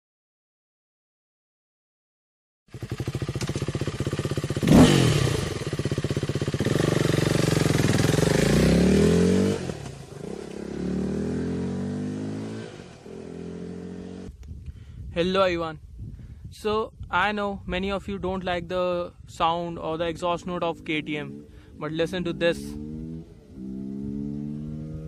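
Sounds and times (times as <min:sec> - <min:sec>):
motorcycle engine idling and revving: 0:02.7 - 0:14.7, 0:19.8 - 0:25.0.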